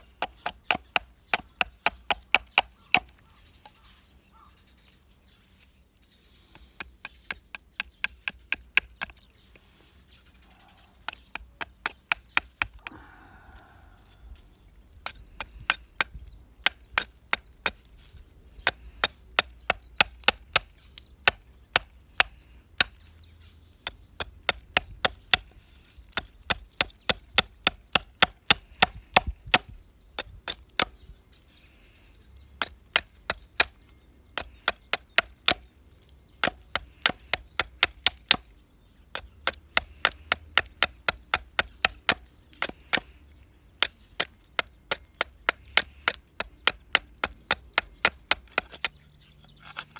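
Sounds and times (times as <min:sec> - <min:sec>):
axe chopping into wood: 0:11.1 - 0:13.0, 0:18.6 - 0:23.0, 0:23.8 - 0:31.0, 0:32.6 - 0:33.8, 0:34.4 - 0:35.7, 0:36.4 - 0:38.5, 0:39.1 - 0:43.2, 0:43.8 - 0:49.0.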